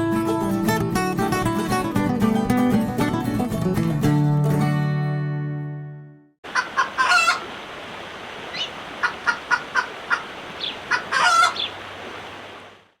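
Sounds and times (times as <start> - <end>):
chicken squawk: 6.5 - 7.5, 8.5 - 11.8
chickens clucking: 6.5 - 7.6, 8.5 - 11.8.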